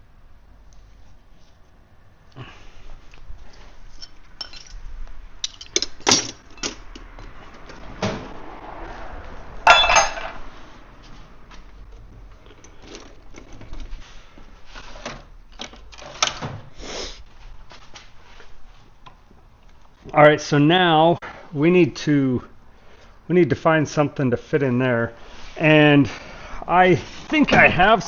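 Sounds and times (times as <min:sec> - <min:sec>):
metal tools clinking on workbench: 0:04.0 - 0:04.8, 0:05.4 - 0:07.0, 0:09.7 - 0:10.4
sharp metallic clank: 0:09.7 - 0:10.4.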